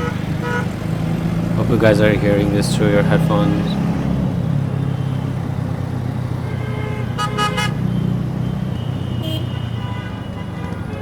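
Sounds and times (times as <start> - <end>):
vehicle horn honks: 0.0 - 0.7, 6.4 - 8.1, 8.8 - 11.0.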